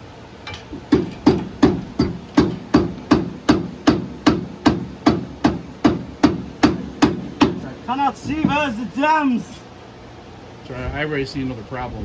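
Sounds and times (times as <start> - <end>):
hammer blows ringing: 0.9 - 8.9.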